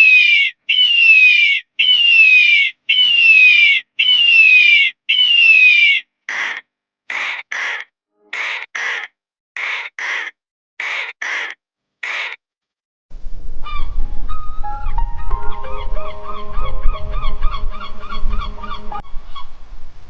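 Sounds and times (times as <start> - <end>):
crow cawing: 0.0 - 12.4
short pitched calls: 0.0 - 12.4
low rumble: 13.1 - 20.0.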